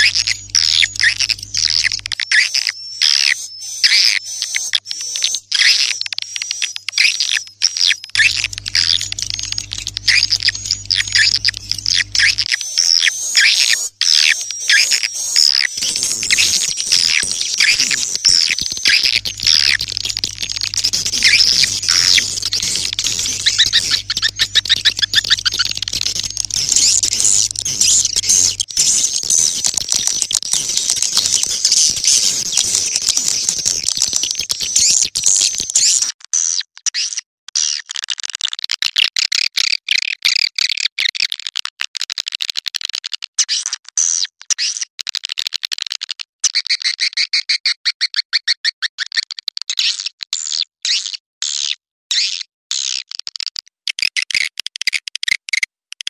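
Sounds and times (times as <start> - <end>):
swiftlets twittering: 0.0 - 36.1.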